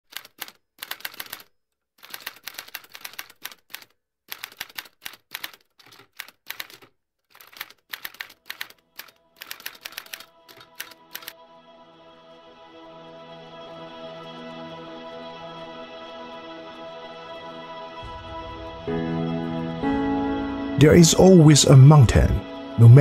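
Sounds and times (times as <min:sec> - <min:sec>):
rapid key clicking: 0:00.1 - 0:11.4.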